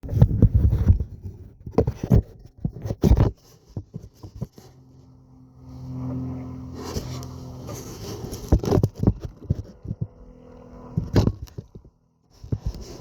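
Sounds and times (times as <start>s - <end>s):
knocks and scrapes: 0.0s - 5.1s, 6.7s - 13.0s
low engine hum: 3.3s - 13.0s.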